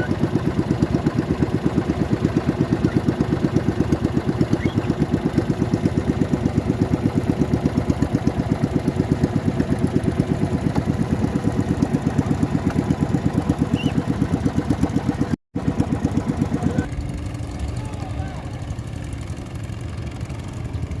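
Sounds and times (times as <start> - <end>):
small boat engine puttering: 0.0 - 21.0.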